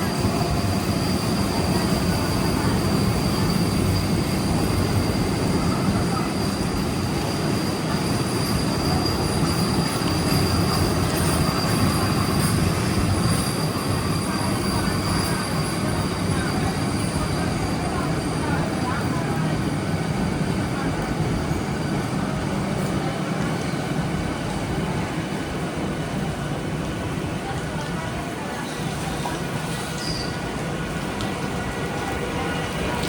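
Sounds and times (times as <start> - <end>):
high thin wheel squeal: 0.0 - 19.2, 28.6 - 30.6
train rumbling on rails: 0.0 - 33.0.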